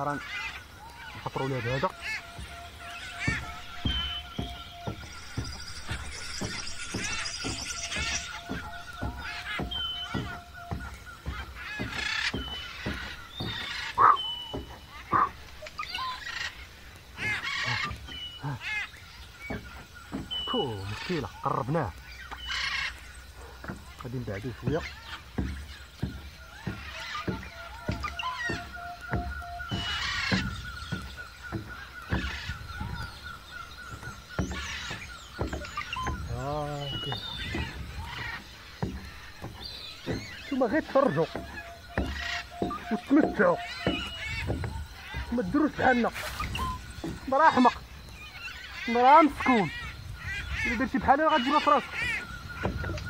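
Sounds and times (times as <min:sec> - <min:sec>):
birds calling: 0:00.0 - 0:53.0
soil scraping: 0:22.5 - 0:48.1
digging stick scraping dry earth: 0:45.2 - 0:47.5.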